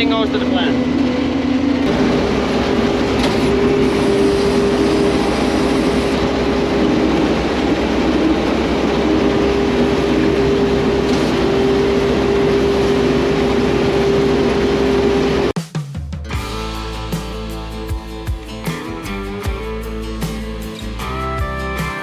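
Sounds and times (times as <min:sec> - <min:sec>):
combine harvester drone: 0:00.0 - 0:15.5
high mechanical whine: 0:00.0 - 0:15.5.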